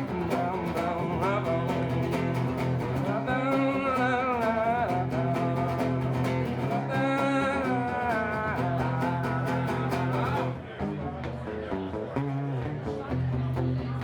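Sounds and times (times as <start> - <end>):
wordless singing voice: 0.0 - 10.6
strummed guitar: 0.0 - 14.0.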